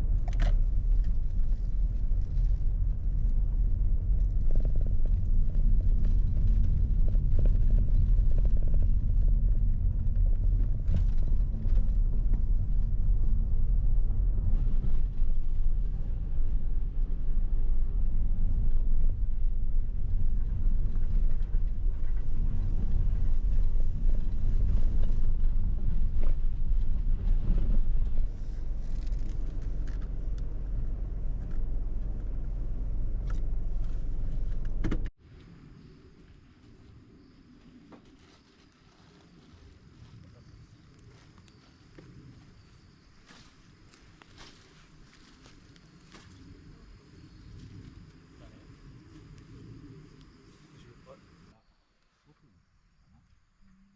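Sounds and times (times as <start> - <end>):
car rumbling on the move: 0.0 - 35.2.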